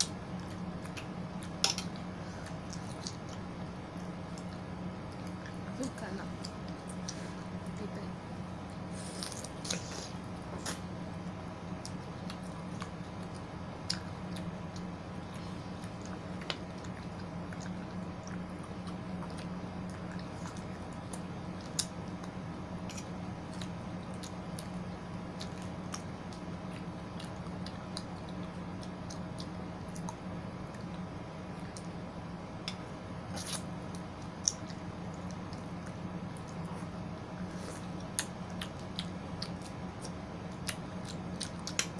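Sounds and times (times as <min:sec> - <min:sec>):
steady low hum: 0:00.0 - 0:41.9
wet chewing of fruit: 0:08.7 - 0:41.9.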